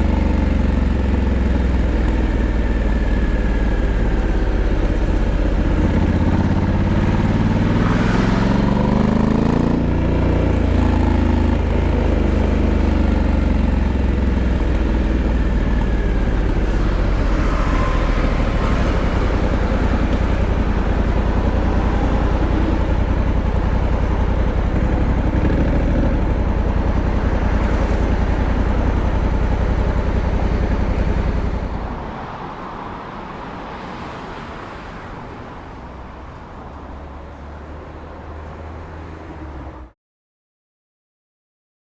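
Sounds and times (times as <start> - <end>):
motorcycle engine revving: 0.0 - 32.1.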